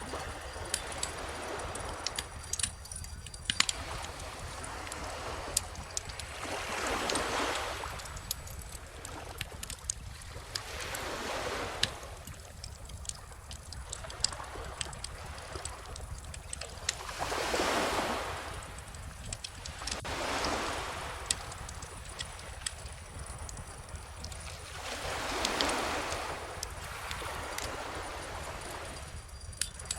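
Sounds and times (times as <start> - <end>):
bonfire crackling and popping: 0.0 - 29.9
ocean waves washing in: 17.0 - 29.5.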